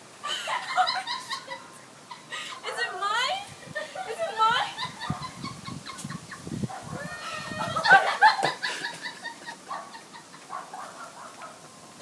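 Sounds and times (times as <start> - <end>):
person squealing excitedly: 6.9 - 8.2.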